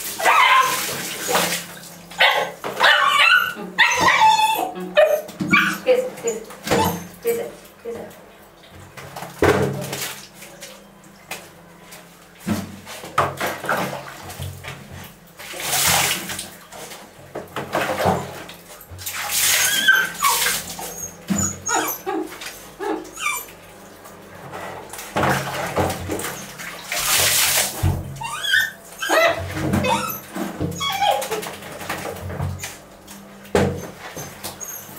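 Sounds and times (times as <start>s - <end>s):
puppies whimpering and yipping: 0.2s - 1.0s, 2.2s - 7.2s, 19.4s - 23.8s, 28.2s - 31.6s, 33.8s - 34.9s.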